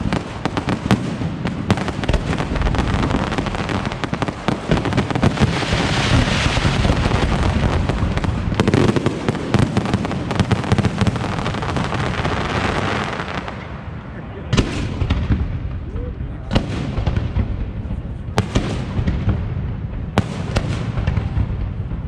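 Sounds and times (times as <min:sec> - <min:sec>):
fireworks bangs and crackling: 0:00.0 - 0:22.0.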